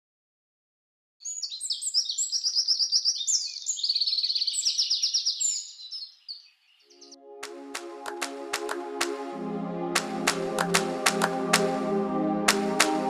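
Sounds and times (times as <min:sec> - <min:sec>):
songbird chirping and trilling: 0:01.2 - 0:07.3.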